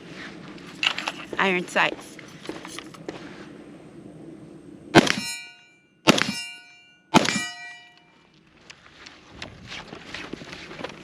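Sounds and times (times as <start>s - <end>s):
rifle shots: 4.9s - 5.3s, 6.1s - 6.5s, 7.1s - 7.7s
steel target ringing: 4.9s - 8.2s.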